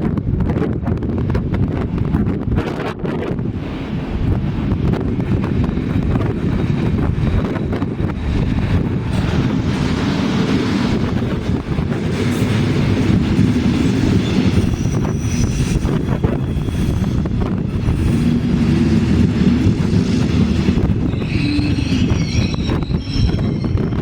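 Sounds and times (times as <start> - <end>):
train rumbling on rails: 0.0 - 24.0
high wheel squeal: 14.0 - 18.4, 20.8 - 24.0.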